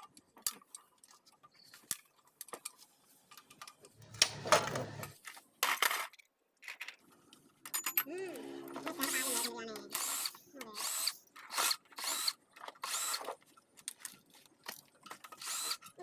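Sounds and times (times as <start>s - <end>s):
metal tools clinking: 7.6s - 10.6s.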